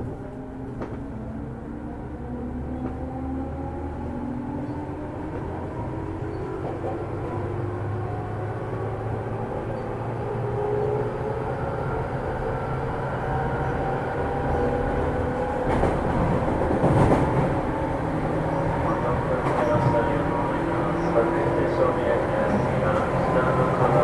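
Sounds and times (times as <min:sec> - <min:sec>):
wheel-on-rail rumble: 0:13.5 - 0:24.0
wheels rattling over rail joints: 0:15.2 - 0:24.0.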